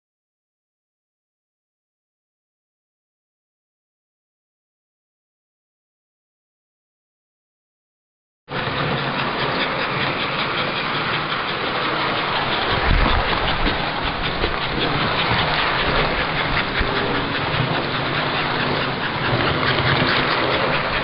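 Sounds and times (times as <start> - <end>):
fine rapid clicking: 8.5 - 21.0
model train running on track: 8.5 - 21.0.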